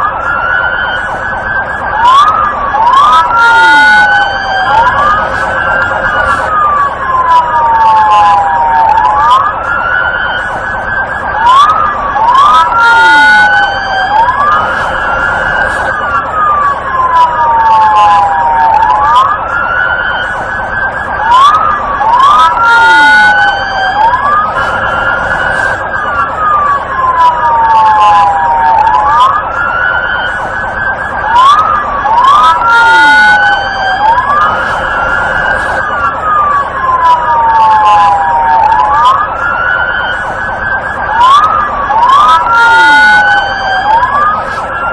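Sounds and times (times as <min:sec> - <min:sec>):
police siren wailing: 0:00.0 - 0:44.9
steady dense tone: 0:00.0 - 0:44.9.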